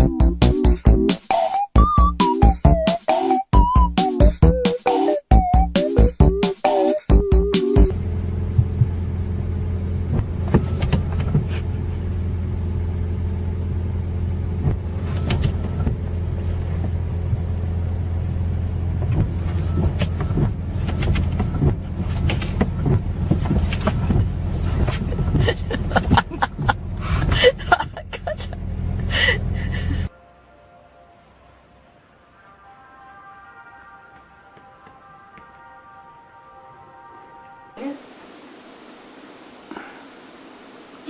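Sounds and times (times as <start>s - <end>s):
low mechanical hum: 7.9s - 30.1s
rustling: 10.2s - 12.1s, 14.7s - 17.6s, 19.0s - 27.4s.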